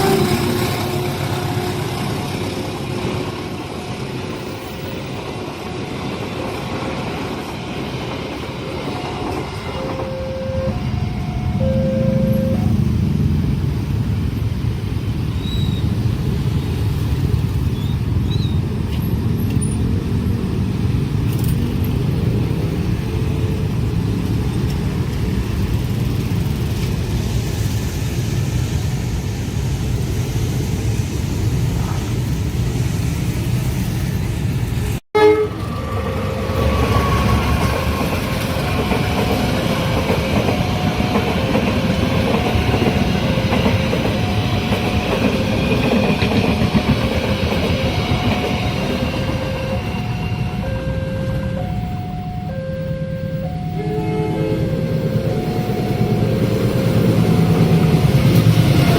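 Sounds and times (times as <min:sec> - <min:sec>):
train rumbling past: 0:00.0 - 0:58.9
level crossing two-note alarm: 0:09.8 - 0:12.7, 0:49.3 - 0:58.0.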